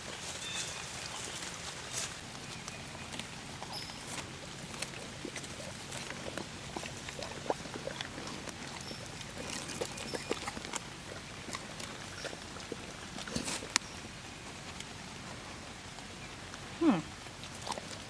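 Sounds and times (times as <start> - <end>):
steady low hum: 0.0 - 18.0
scattered crackles and clicks: 0.2 - 13.9.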